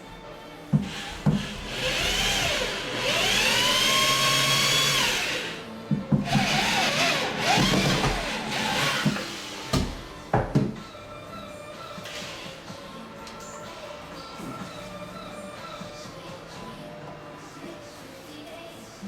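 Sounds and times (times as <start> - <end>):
power drill driving screws: 0.8 - 5.6, 6.3 - 9.4.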